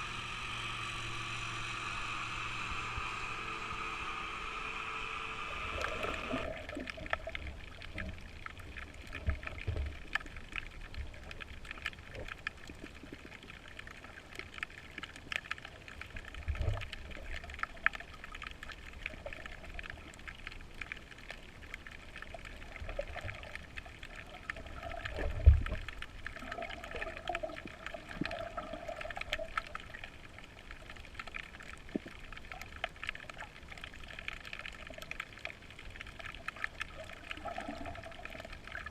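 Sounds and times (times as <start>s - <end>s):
steady hum: 0.0s - 6.9s
water trickling: 0.0s - 38.9s
small irregular clicks: 5.0s - 38.9s.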